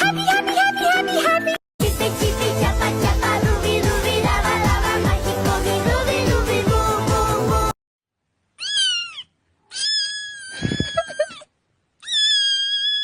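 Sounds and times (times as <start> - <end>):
music: 0.0 - 7.8
cat meowing: 8.6 - 11.4, 12.0 - 13.0.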